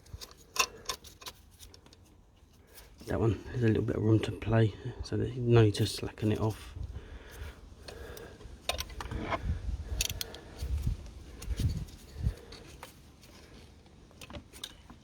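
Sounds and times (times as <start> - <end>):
spanner clicking and scraping: 0.0 - 2.0, 8.6 - 10.8.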